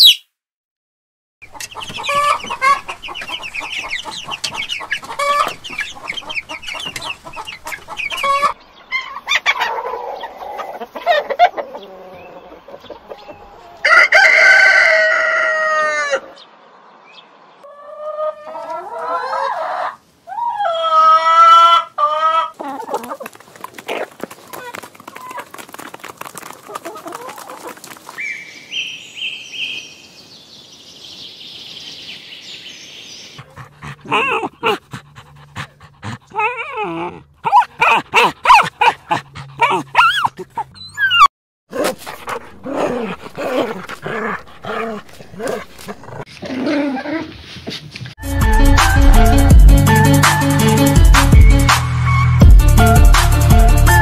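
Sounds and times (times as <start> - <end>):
chickens clucking: 1.4 - 16.4, 17.6 - 28.2, 33.3 - 46.5
puppy calling: 33.4 - 47.0.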